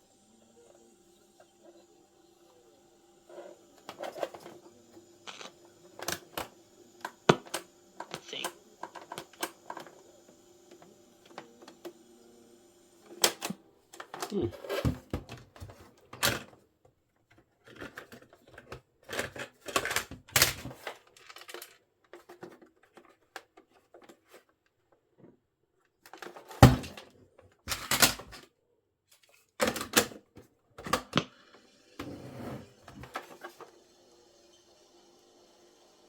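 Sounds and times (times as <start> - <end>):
plastic clicks and clunks: 17.3 - 24.5, 29.6 - 31.3.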